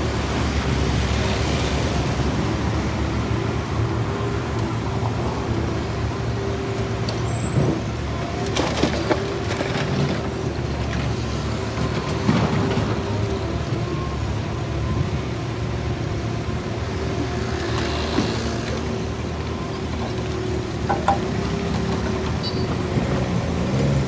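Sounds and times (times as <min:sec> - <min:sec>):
heavy machinery engine running: 0:00.0 - 0:24.0
knocks and clanks: 0:11.7 - 0:13.5, 0:20.0 - 0:24.0.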